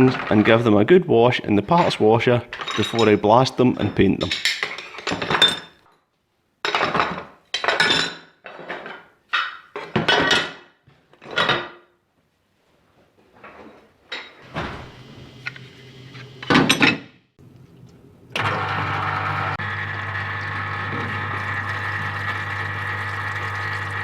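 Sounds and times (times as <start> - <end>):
metal casings clanking: 2.5 - 5.9.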